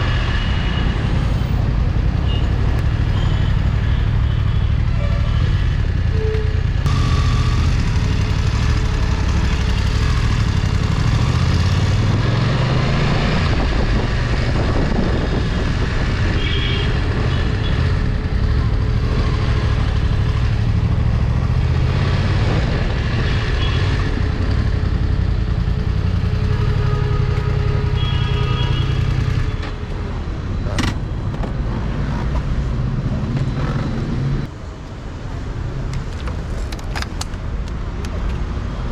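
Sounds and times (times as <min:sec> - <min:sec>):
road and wind noise: 0:00.0 - 0:38.9
motorcycle engine running: 0:06.9 - 0:12.4.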